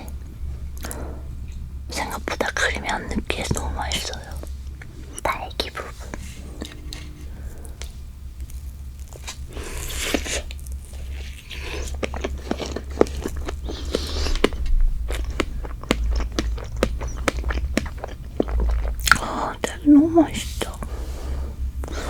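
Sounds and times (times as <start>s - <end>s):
person chewing cake: 0.0s - 22.0s
wet chewing clicks and smacks: 7.6s - 19.8s.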